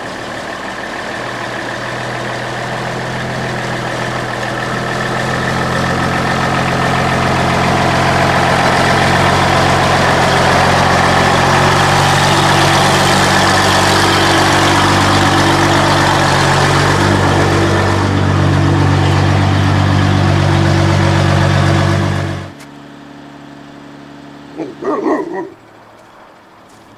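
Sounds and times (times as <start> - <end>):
diesel engine idling: 0.0 - 26.9.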